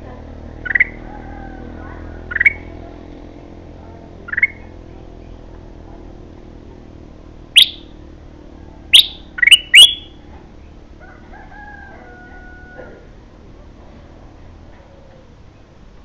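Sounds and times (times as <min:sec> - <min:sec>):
bird calling: 0:00.6 - 0:02.8, 0:04.2 - 0:05.4, 0:07.6 - 0:08.0, 0:08.9 - 0:10.2.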